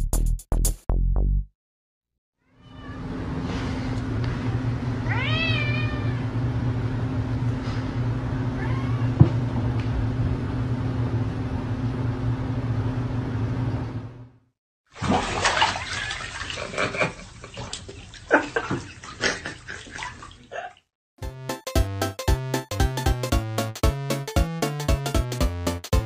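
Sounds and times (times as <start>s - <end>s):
cat meowing: 2.4s - 3.1s, 5.1s - 6.3s, 8.4s - 9.2s.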